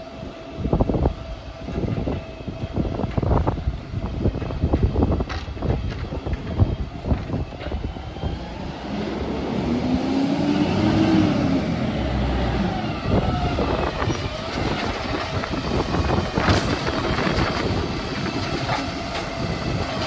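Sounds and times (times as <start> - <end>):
garbage truck engine revving: 6.6 - 20.0.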